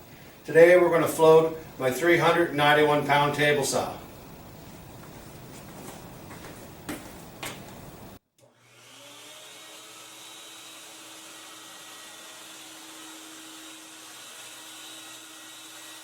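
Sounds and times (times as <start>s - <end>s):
steady hum: 0.0s - 8.2s
shop vacuum running: 0.0s - 16.0s.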